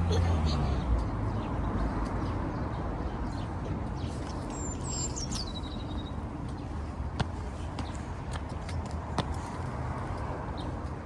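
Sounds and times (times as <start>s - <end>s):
city traffic rumble: 0.0s - 11.0s
bird chirping: 4.0s - 6.7s.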